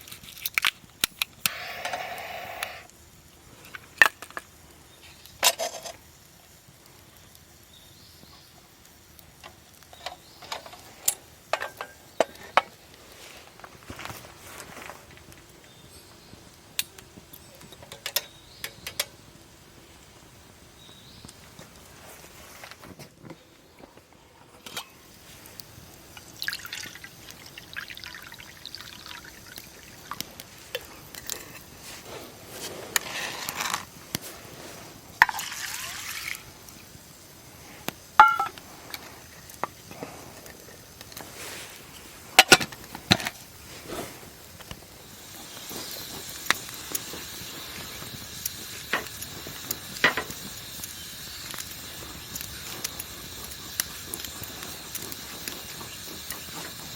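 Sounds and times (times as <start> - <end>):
sizzling in a pan: 0.0 - 19.2, 24.6 - 56.9
liquid being poured: 26.2 - 30.2, 35.2 - 36.4.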